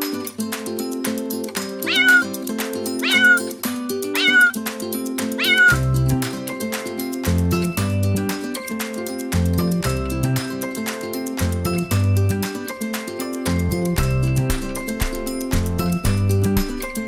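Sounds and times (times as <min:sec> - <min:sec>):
acoustic guitar music: 0:00.0 - 0:17.0
kitten meowing: 0:01.8 - 0:02.3, 0:03.0 - 0:03.5, 0:04.2 - 0:04.6, 0:05.4 - 0:05.8.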